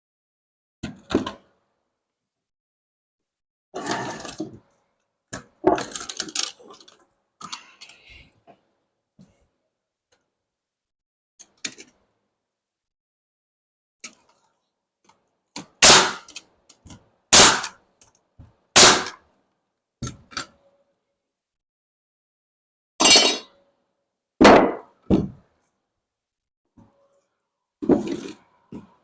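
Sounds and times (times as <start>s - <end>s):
hammer striking wood: 15.8s - 16.3s, 17.4s - 17.7s, 18.8s - 19.2s, 24.4s - 25.4s.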